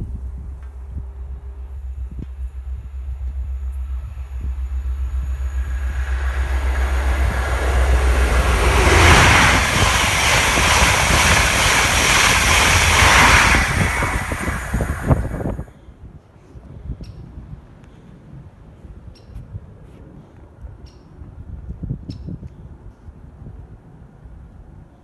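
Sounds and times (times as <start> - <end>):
train passing at speed: 0.0 - 15.8
wind buffeting microphone: 4.0 - 24.8.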